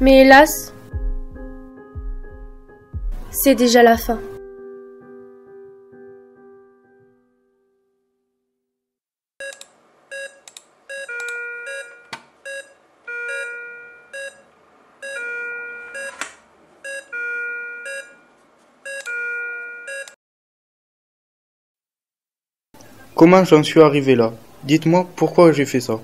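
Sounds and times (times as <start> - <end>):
patient monitor alarm beeping: 9.4 - 20.2.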